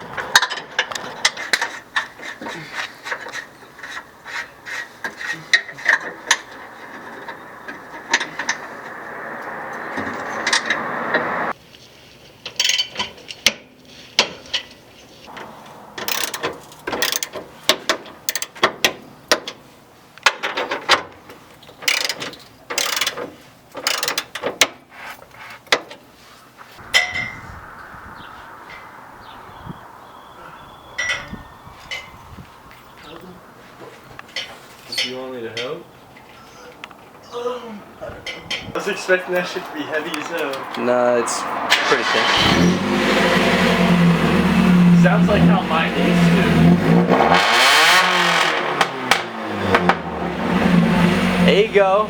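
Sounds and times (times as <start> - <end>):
steady rushing noise: 3.0 - 11.6, 26.7 - 34.9, 38.4 - 47.0
ratchet wrench clicking: 16.1 - 16.4, 17.0 - 17.3, 22.8 - 23.2, 23.9 - 24.2.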